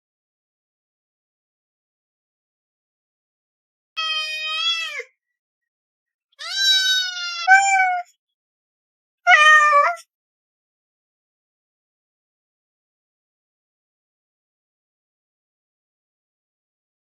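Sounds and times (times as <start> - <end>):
cat meowing: 4.0 - 5.1, 6.4 - 8.1, 9.3 - 10.0.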